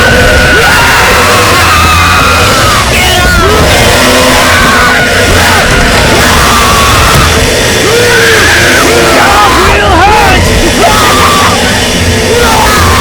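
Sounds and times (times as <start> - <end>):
loud music: 0.0 - 13.0
people yelling and screaming: 0.0 - 13.0.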